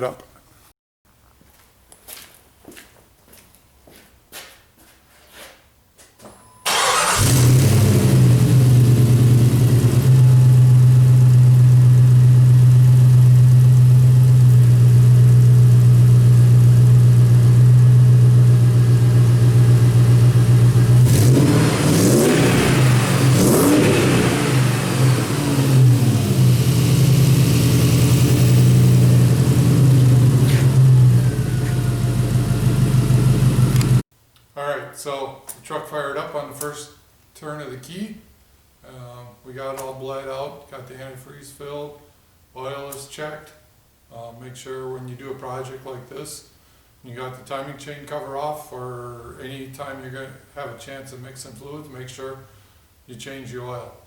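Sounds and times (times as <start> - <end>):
car engine starting and revving: 6.7 - 34.0.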